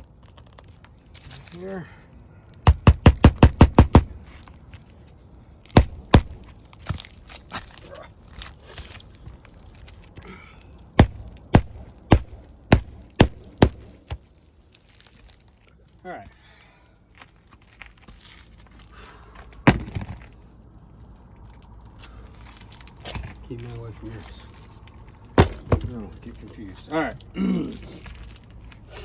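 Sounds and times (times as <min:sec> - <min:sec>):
hammer driving nails into shingle: 0:02.6 - 0:04.2, 0:11.0 - 0:14.2.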